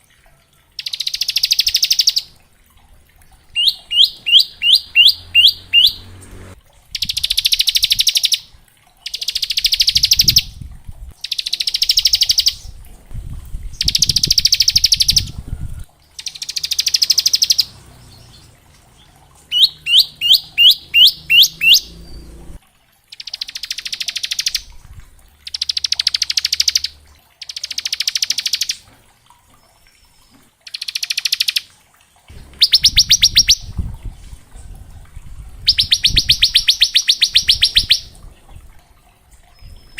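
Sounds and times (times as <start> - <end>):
bird quick rising notes: 3.6 - 7.3, 19.5 - 22.6, 32.3 - 34.1.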